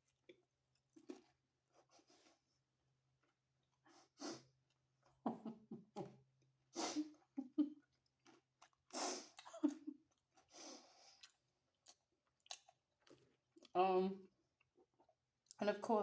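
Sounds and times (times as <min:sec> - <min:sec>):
close chewing mouth sounds: 0:00.0 - 0:02.0, 0:07.8 - 0:13.8.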